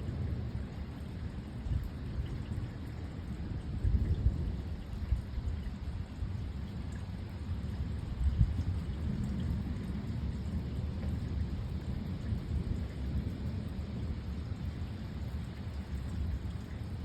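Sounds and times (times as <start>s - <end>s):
rain falling: 0.0s - 17.0s
thunder rumbling: 8.2s - 16.4s.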